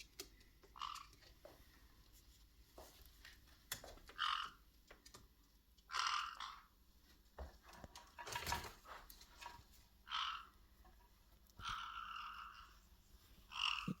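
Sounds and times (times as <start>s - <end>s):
parrots calling: 0.7s - 1.2s, 4.1s - 4.7s, 5.8s - 6.8s, 10.0s - 10.9s, 11.6s - 14.0s.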